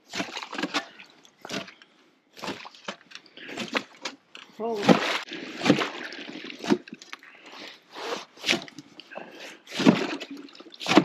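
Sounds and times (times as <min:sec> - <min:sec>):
shovel scraping through ice: 0:07.9 - 0:08.7.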